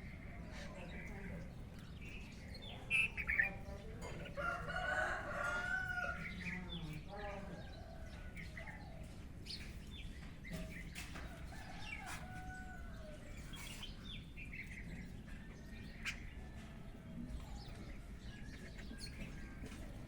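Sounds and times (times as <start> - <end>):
bird chirps and calls: 0.0 - 12.4, 13.2 - 16.6
faint steady background noise: 0.0 - 20.0
chickens clucking: 0.1 - 20.0.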